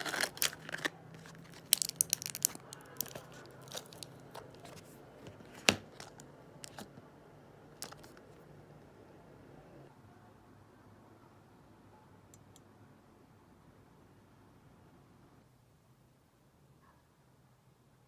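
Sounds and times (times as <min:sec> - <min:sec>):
handling clicks and crinkles: 0:00.0 - 0:07.1, 0:07.8 - 0:08.4.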